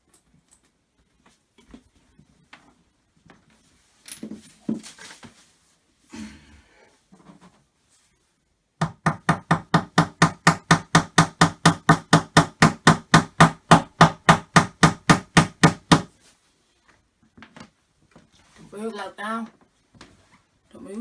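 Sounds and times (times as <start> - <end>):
rapid hammering on wooden panel: 8.8 - 16.1.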